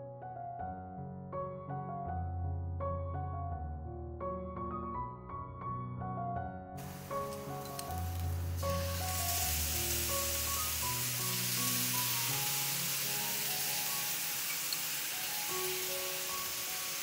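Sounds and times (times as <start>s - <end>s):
soft piano music: 0.0s - 17.0s
vegetables sizzling in a frying pan: 6.8s - 17.0s.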